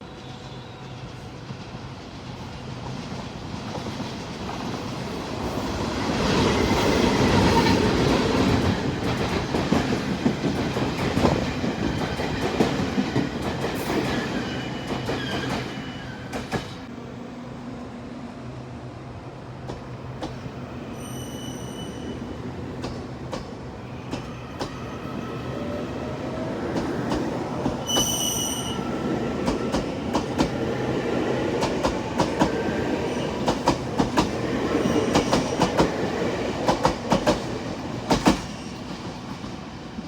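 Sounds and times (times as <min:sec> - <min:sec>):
train rushing past: 0:00.0 - 0:40.0
high-pitched squeals: 0:20.8 - 0:22.5, 0:27.8 - 0:29.4.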